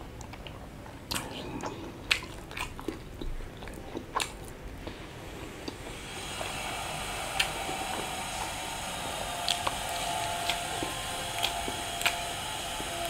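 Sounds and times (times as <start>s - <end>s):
wet chewing: 0.2s - 5.0s, 5.6s - 13.0s
squishy mouth clicks: 10.4s - 12.3s.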